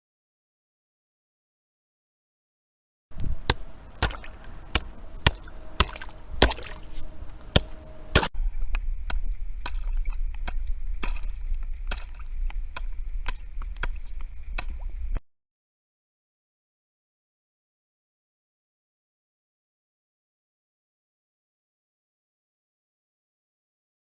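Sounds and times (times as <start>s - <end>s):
low steady rumble: 3.1s - 15.2s
sharp strikes: 3.2s - 8.3s.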